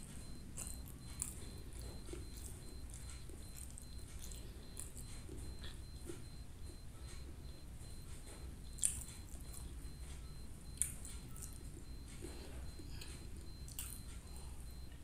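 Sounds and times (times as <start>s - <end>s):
person chewing rice: 0.0s - 15.0s.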